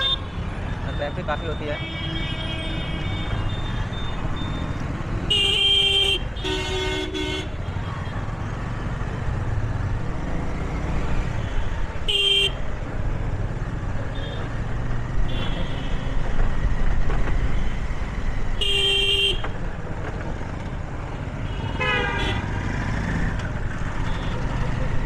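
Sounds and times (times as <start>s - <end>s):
low rumble of engines: 0.0s - 25.0s
wind: 0.0s - 25.0s
vehicle horns honking: 1.6s - 3.8s, 5.3s - 7.6s, 11.4s - 12.6s, 15.2s - 16.2s, 18.6s - 19.6s, 21.4s - 22.5s, 24.0s - 24.5s.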